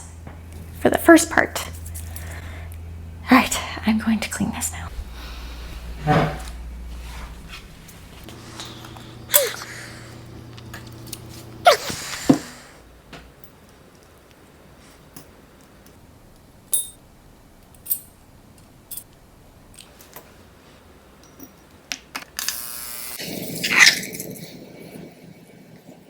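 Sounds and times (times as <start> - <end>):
short buzz: 0.0 - 13.0.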